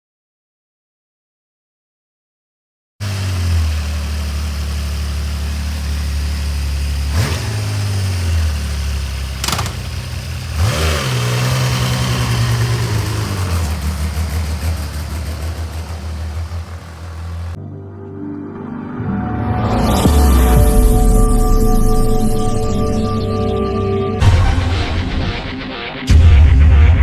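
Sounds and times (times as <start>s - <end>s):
motorcycle engine idling and revving: 3.0s - 17.6s
sharp click: 9.4s - 10.0s.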